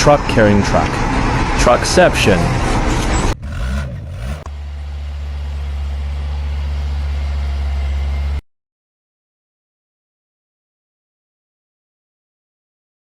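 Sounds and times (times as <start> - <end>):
vehicle engine running: 0.2 - 8.4.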